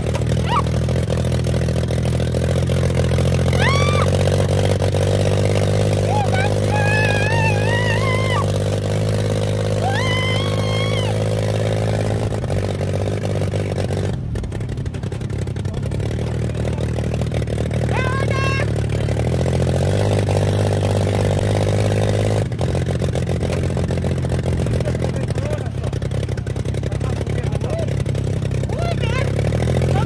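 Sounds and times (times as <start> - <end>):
small motorbike engine running: 0.0 - 30.0
short rising cries: 0.4 - 0.8, 3.4 - 4.2, 6.0 - 8.6, 9.8 - 11.3.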